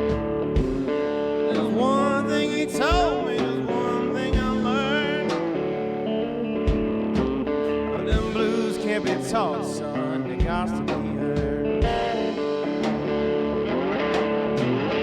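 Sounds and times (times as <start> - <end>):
drum hits: 0.0 - 1.9, 4.3 - 5.6, 6.7 - 7.5, 8.1 - 9.5, 10.3 - 14.9
blues-rock guitar music: 0.0 - 15.0.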